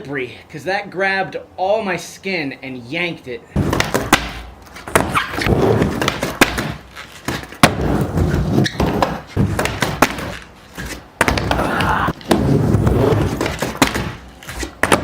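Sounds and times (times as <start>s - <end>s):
skateboard wheels rumbling: 3.6s - 15.0s
skateboard clacking on ramp: 14.8s - 15.0s.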